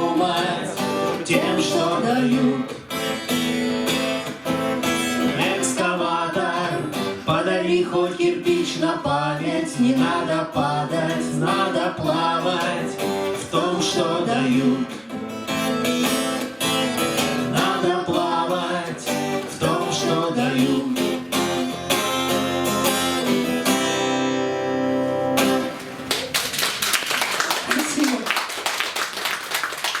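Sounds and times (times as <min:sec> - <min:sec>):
acoustic guitar playing: 0:00.0 - 0:26.5
people clapping: 0:25.4 - 0:30.0.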